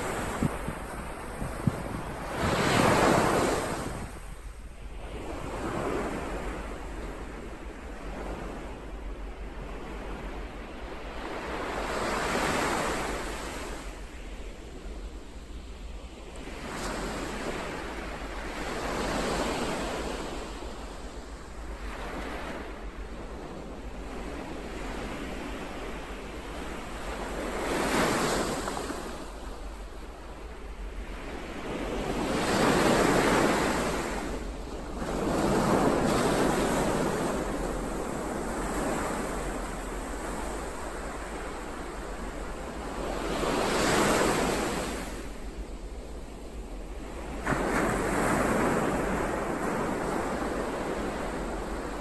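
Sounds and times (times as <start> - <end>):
ocean waves breaking: 0.0 - 7.4, 21.8 - 52.0.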